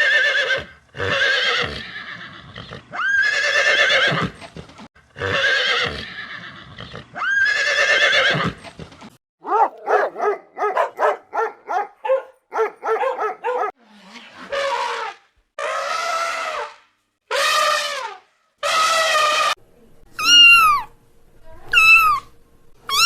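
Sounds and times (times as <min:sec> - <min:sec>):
horse whinnying: 0:00.0 - 0:04.4, 0:05.2 - 0:08.6.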